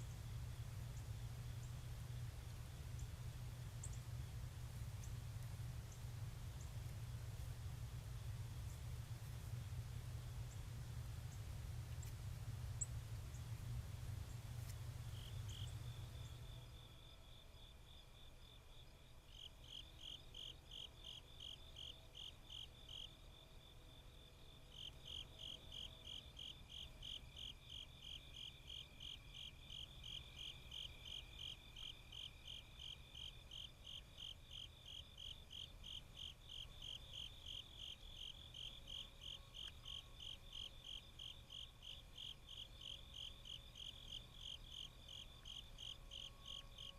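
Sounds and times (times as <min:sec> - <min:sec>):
low hum: 0:00.0 - 0:17.0
insect chirping: 0:00.0 - 0:46.9.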